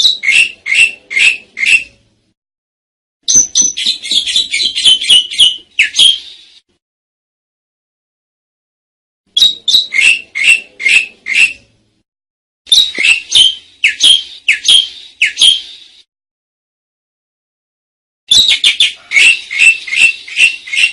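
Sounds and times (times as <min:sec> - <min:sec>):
starling calling sharp notes: 0:00.0 - 0:02.0, 0:03.3 - 0:06.6, 0:09.3 - 0:11.7, 0:12.7 - 0:16.1, 0:18.3 - 0:20.9.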